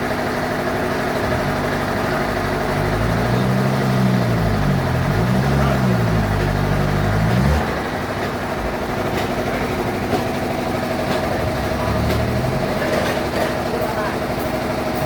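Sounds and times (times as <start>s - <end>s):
bandsaw machinery humming: 10.7s - 14.5s.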